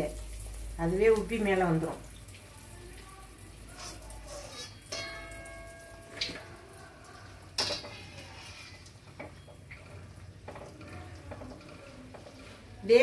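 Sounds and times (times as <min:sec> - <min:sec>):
batter frying in hot oil: 0:00.0 - 0:13.0.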